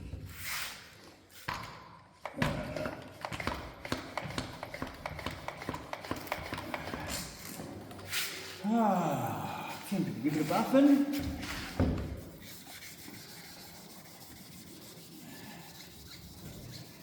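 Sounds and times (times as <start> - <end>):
sandpaper scratching plastic: 10.2 - 17.0.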